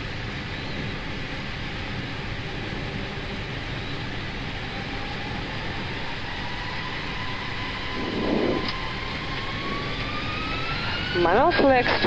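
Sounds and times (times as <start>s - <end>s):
jet engines rushing and whining: 0.0s - 12.0s.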